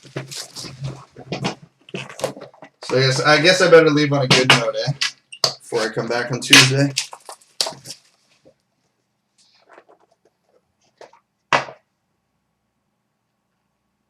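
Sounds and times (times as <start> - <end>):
packaging crackle: 6.9 - 8.2.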